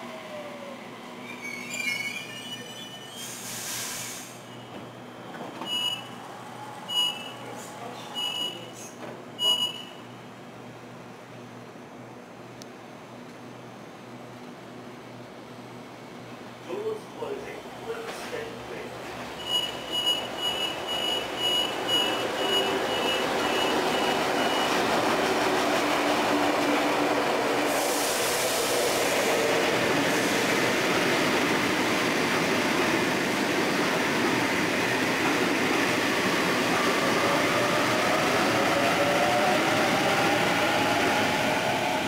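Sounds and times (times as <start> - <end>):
burst of hiss: 3.2 - 4.4, 27.7 - 29.3
high beeps: 6.9 - 7.4, 8.2 - 8.7, 9.4 - 10.0, 19.4 - 24.8
train rumbling on rails: 15.8 - 42.0.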